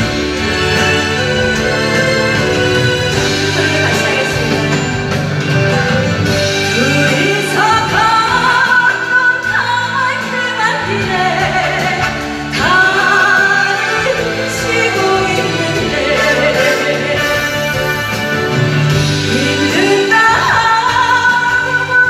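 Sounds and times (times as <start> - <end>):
instrumental accompaniment: 0.0 - 22.0
woman singing a slow ballad: 6.6 - 18.0, 19.1 - 22.0.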